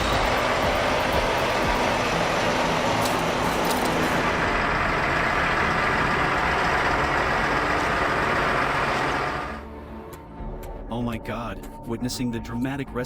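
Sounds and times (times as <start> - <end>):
heavy truck engine running: 0.0 - 10.4.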